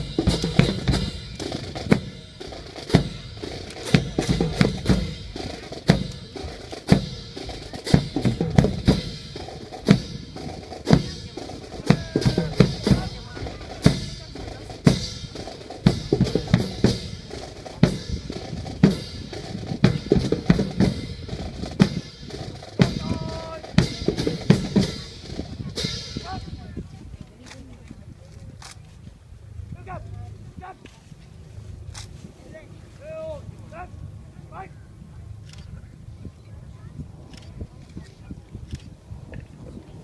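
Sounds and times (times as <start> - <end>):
snare drum rolls and rim hits: 0.0 - 26.6
marching drums cadence: 0.0 - 27.8.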